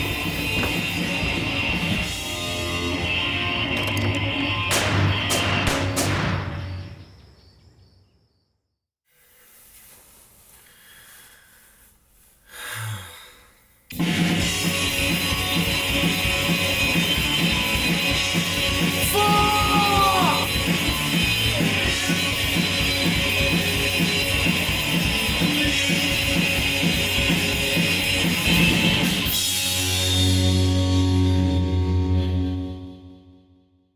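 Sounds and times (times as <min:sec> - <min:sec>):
rock guitar: 0:00.0 - 0:05.4, 0:14.0 - 0:32.8
drum beat: 0:19.0 - 0:20.6.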